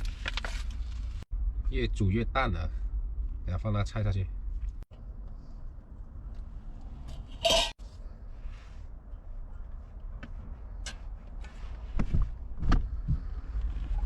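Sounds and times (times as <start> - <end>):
steady low rumble: 0.6 - 14.0
utensils clinking against pot: 7.4 - 7.8.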